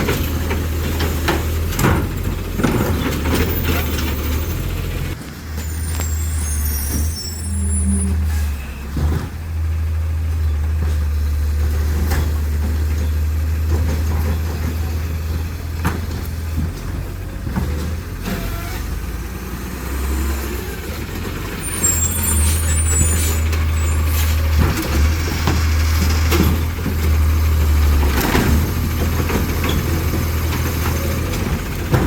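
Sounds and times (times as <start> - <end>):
sharp knocks and clanks: 0.0 - 4.8
garbage truck engine drone: 0.0 - 32.0.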